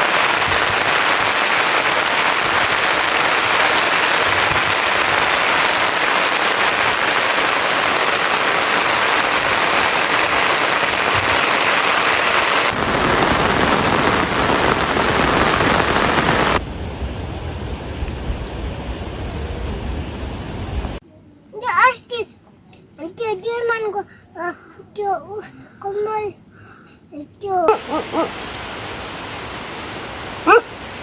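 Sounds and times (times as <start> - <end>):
rain falling: 0.0 - 16.6, 27.7 - 31.0
low rumble: 15.8 - 21.0.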